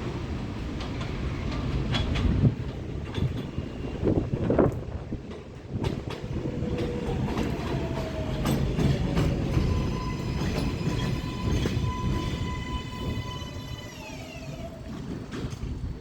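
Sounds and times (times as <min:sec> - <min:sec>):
subway train rumbling: 0:00.0 - 0:16.0
wheels clacking over rail joints: 0:00.7 - 0:16.0.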